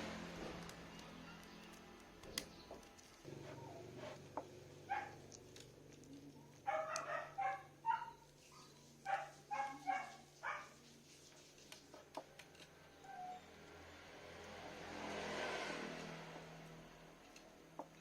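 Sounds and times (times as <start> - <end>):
dog barking: 4.9 - 5.2, 6.6 - 10.8.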